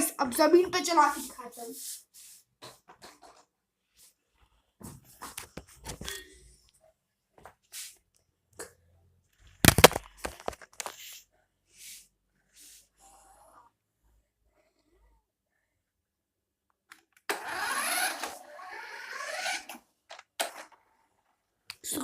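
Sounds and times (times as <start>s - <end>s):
toy car handling knocks and rustles: 2.6s - 3.6s, 9.5s - 11.1s.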